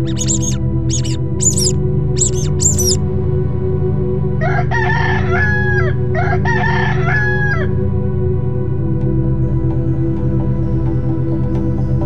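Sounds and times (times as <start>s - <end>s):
rooster crowing: 0.0s - 3.0s.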